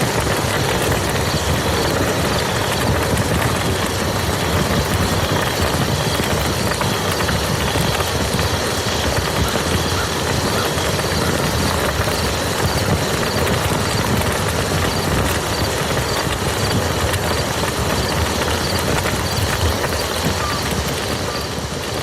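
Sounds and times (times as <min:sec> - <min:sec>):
rain falling on ground: 0:00.0 - 0:22.0.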